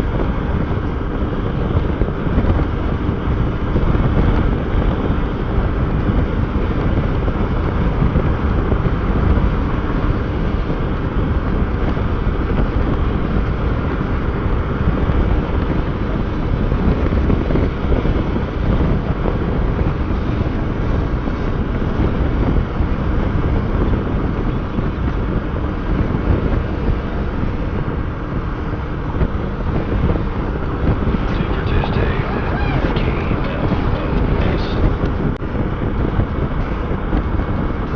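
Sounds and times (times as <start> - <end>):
wind rushing over microphone: 0.0 - 37.9.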